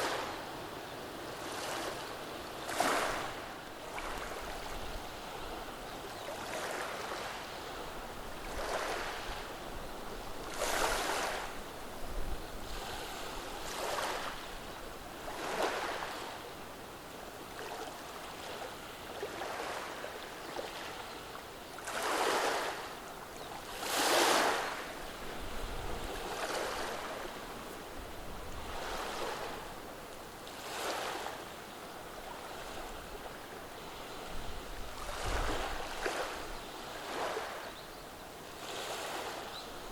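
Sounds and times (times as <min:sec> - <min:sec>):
waves washing over stones: 0:02.7 - 0:04.8, 0:21.8 - 0:22.9, 0:23.6 - 0:27.5.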